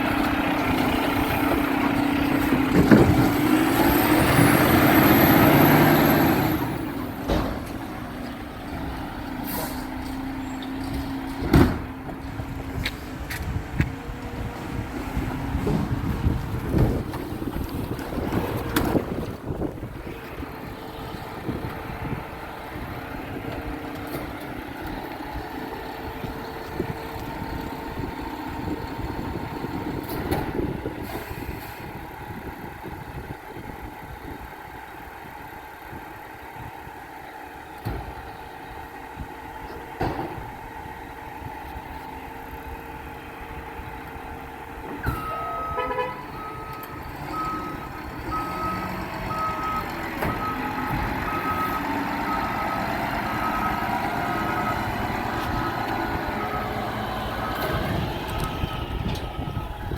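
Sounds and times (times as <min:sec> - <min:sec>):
garbage truck engine humming: 0:00.0 - 0:59.9
reverse alarm beeping: 0:45.0 - 0:52.8.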